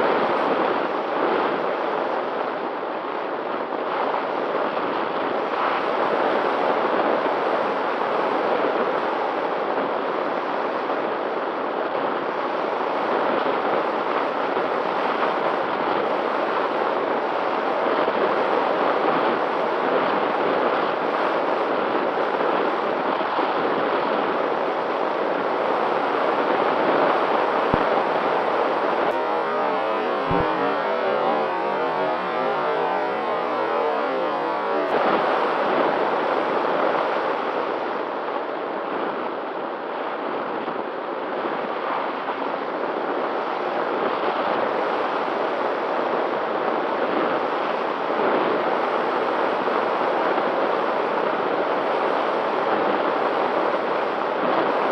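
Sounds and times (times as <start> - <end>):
faint steady hum: 25.4 - 36.6
music: 27.8 - 35.1.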